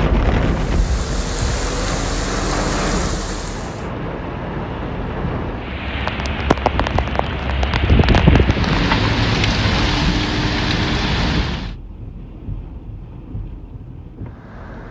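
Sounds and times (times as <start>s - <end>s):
heavy rain pouring: 0.0s - 3.9s, 8.5s - 11.8s
raindrops tapping close by: 0.0s - 3.9s.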